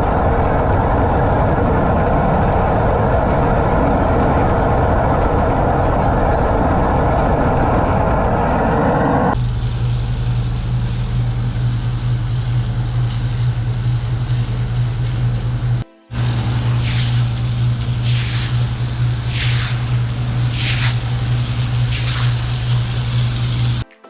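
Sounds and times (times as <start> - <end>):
loud mechanical running noise: 0.0 - 23.8
low motor hum: 0.0 - 23.8
hiss: 9.4 - 23.8.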